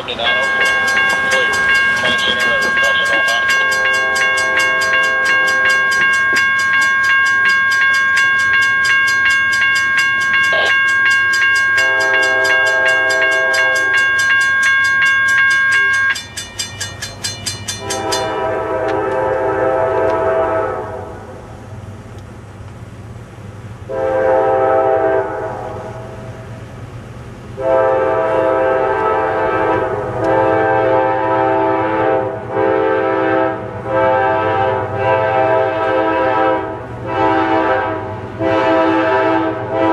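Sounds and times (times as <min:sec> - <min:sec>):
locomotive horn blasts: 0:00.0 - 0:07.8, 0:11.7 - 0:16.2, 0:17.7 - 0:21.5, 0:23.9 - 0:26.4, 0:27.6 - 0:39.9
crossing bell clanging: 0:00.0 - 0:19.4.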